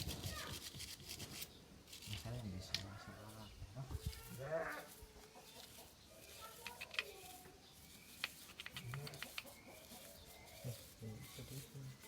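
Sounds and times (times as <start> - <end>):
light clicks and taps: 6.6 - 7.4, 8.2 - 9.6.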